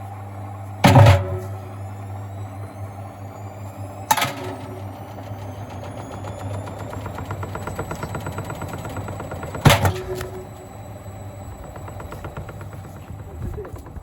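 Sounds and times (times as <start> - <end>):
washing machine motor hum: 0.0 - 14.0
bricks rattling in drum: 4.2 - 14.0.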